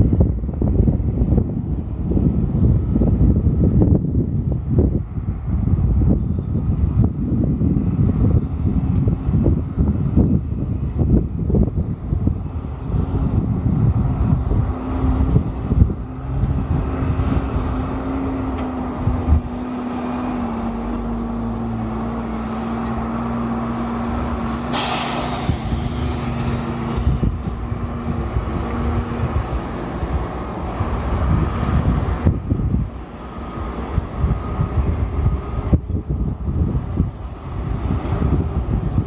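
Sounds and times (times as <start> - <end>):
wind buffeting microphone: 0.0 - 39.0
diesel truck engine running: 0.2 - 38.8
short hiss: 24.7 - 28.0.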